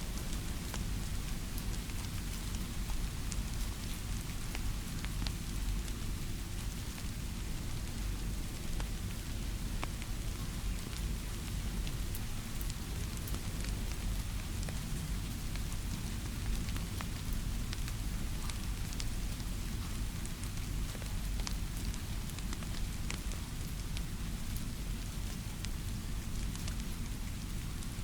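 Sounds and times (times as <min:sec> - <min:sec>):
steady rain hiss: 0:00.0 - 0:28.0.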